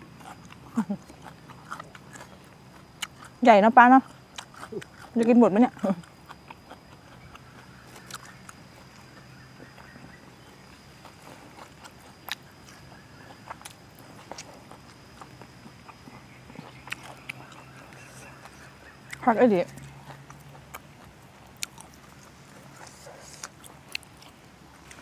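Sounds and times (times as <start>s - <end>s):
person chewing: 0.0s - 3.4s, 4.0s - 25.0s
faint steady hum: 0.0s - 25.0s.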